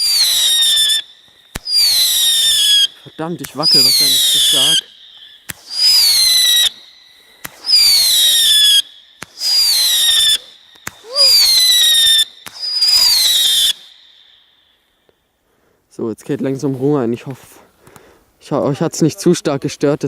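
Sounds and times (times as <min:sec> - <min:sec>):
firework pops: 0:00.0 - 0:13.9
firework whistles: 0:00.0 - 0:15.5.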